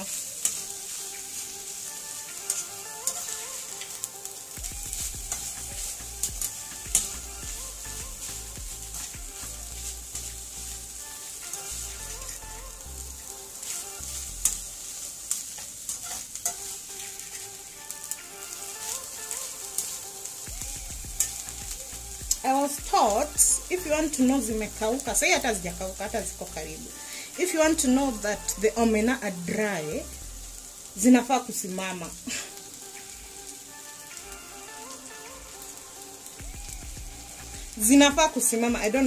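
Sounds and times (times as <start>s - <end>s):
fish sizzling in a pan: 0.0s - 39.0s
wire skimmer scraping a pan: 13.5s - 17.6s.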